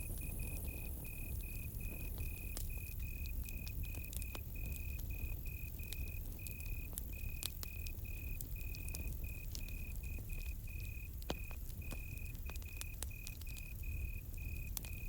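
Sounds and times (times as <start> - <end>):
campfire crackling and popping: 0.0 - 15.0
cricket chirping: 0.0 - 15.0.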